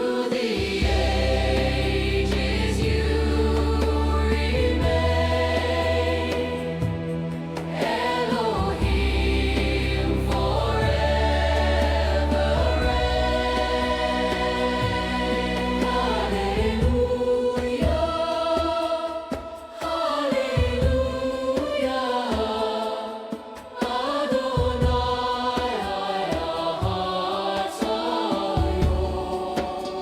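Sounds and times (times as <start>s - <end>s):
choir singing a hymn-like song: 0.0s - 30.0s
instrumental accompaniment: 0.2s - 30.0s.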